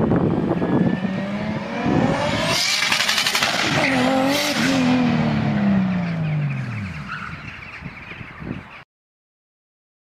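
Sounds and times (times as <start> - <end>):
car engine winding down: 0.4 - 7.4.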